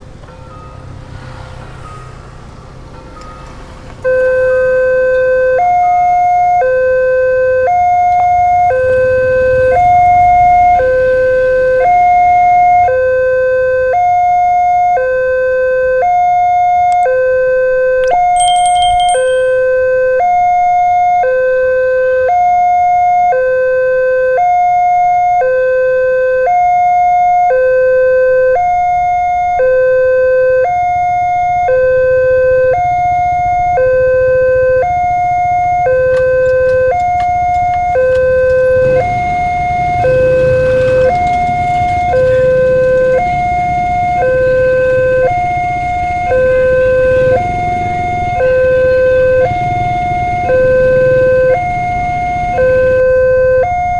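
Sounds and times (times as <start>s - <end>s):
level crossing two-tone alarm: 3.0s - 53.9s
brief high-pitched tone: 18.0s - 20.0s.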